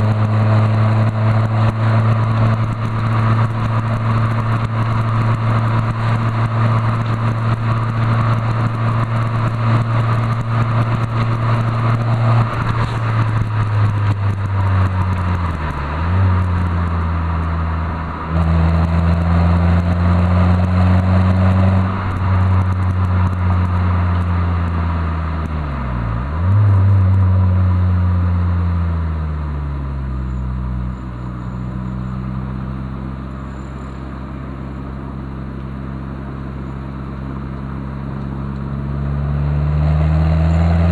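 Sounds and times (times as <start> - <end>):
car engine and exhaust driving: 0.0 - 40.9.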